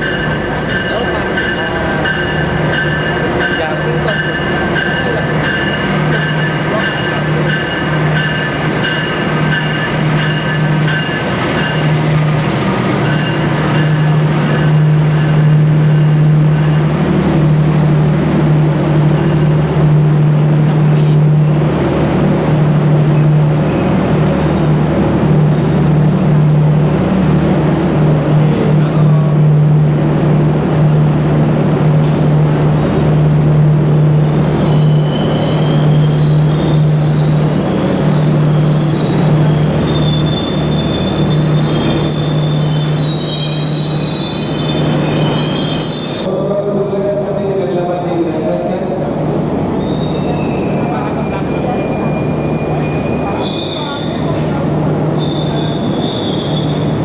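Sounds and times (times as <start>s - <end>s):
wheel and brake squeal: 34.6s - 46.3s, 49.8s - 54.4s, 55.2s - 57.0s.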